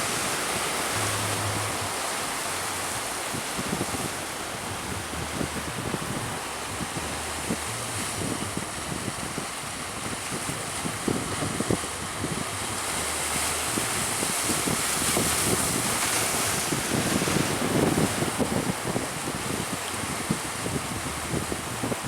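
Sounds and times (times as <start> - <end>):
sea waves rushing: 0.0 - 22.0
wind buffeting microphone: 0.0 - 22.0.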